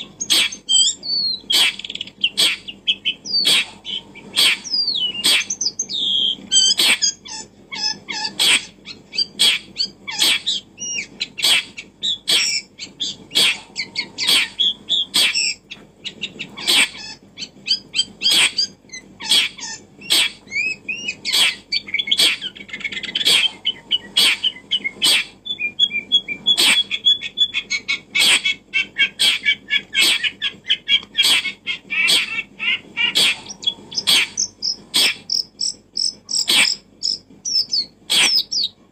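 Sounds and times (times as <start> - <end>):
birds chirping: 0.0 - 38.9
sharp repeating clicks: 33.2 - 38.6.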